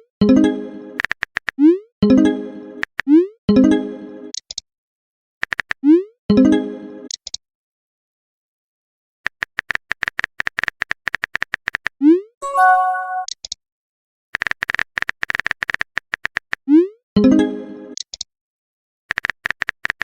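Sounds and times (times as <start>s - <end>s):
multi-tone message chime: 12.4s - 13.3s.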